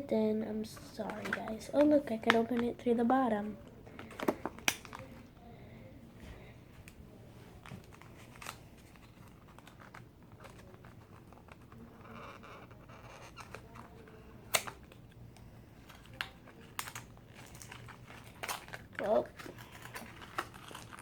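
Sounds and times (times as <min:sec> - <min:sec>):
package crinkling and tearing: 0:03.9 - 0:05.2, 0:07.6 - 0:15.1, 0:15.8 - 0:21.0.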